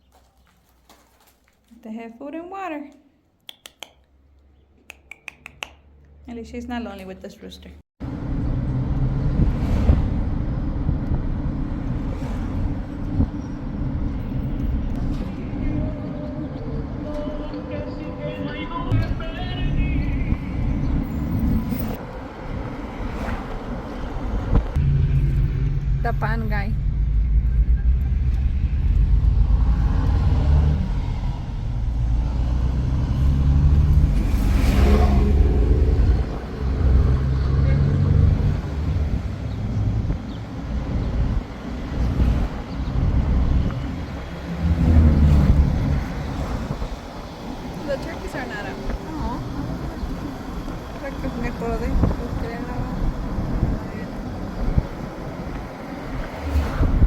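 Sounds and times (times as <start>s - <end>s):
steady low rumble: 8.0s - 37.3s
vehicle passing by: 8.0s - 57.0s.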